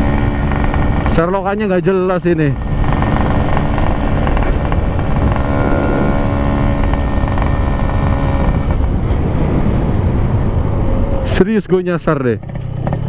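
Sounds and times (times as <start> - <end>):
motorcycle engine running: 0.0 - 9.5, 12.4 - 13.0.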